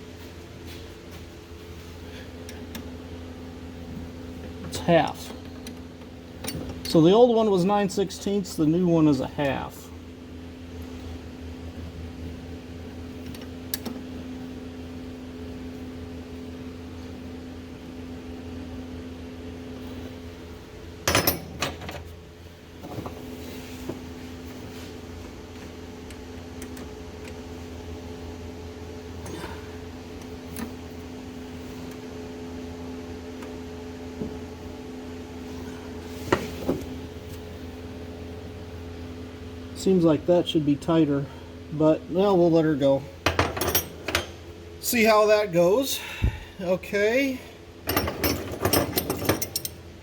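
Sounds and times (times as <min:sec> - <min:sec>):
steady low two-tone hum: 0:00.0 - 0:50.0
wrench clinking against metal: 0:47.9 - 0:49.8.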